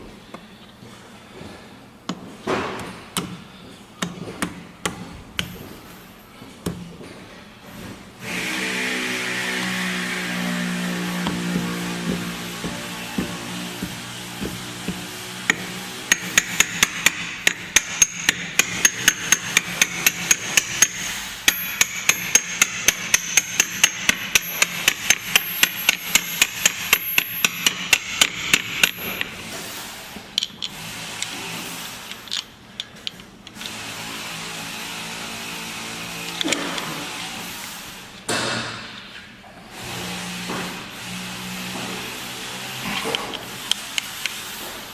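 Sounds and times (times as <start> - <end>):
hammer blows on metal: 8.3 - 28.4
scattered knocks: 10.7 - 17.3.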